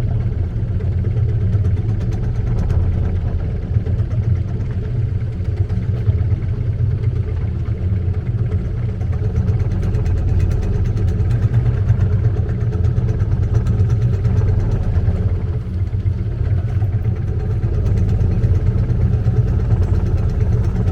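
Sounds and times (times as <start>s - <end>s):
boat engine running: 0.0s - 20.9s.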